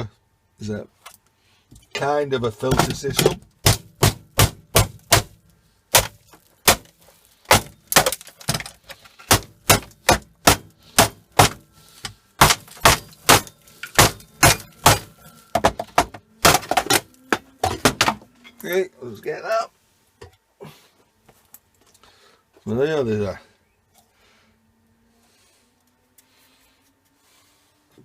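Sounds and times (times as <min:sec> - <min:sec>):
sharp knocks and cracks of plastic breaking: 0:02.6 - 0:18.3.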